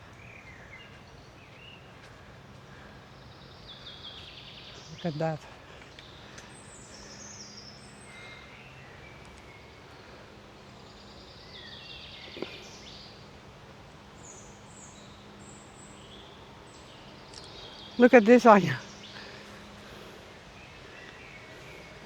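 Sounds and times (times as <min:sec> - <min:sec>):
outdoor background noise: 0:00.0 - 0:22.0
songbirds singing: 0:00.0 - 0:22.0.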